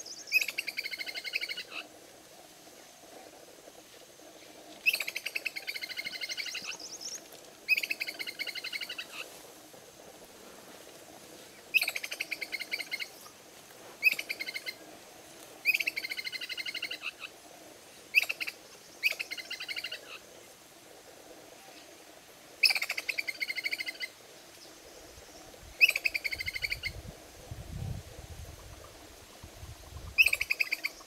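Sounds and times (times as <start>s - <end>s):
bird trilling: 4.8s - 7.0s.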